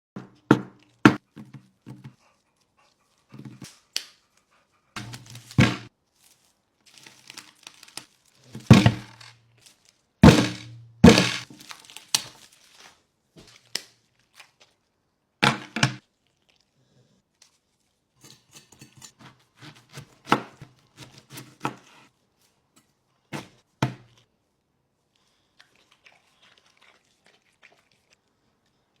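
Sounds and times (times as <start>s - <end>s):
sharp knocks and thuds: 5.0s - 5.9s, 8.6s - 9.3s, 10.2s - 11.5s.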